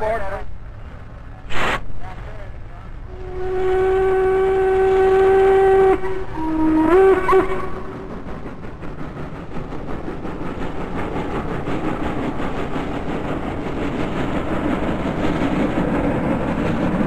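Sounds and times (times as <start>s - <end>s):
steam train rumbling rhythmically: 0.0s - 17.0s.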